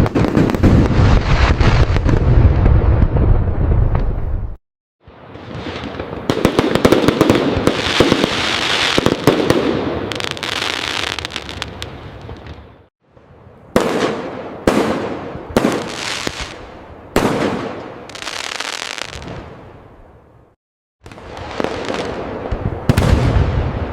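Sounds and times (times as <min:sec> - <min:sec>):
fireworks crackling: 0:00.0 - 0:12.8, 0:13.8 - 0:19.6, 0:21.0 - 0:23.9
fireworks aerial bursts: 0:00.0 - 0:12.9, 0:13.7 - 0:19.7, 0:21.0 - 0:23.9.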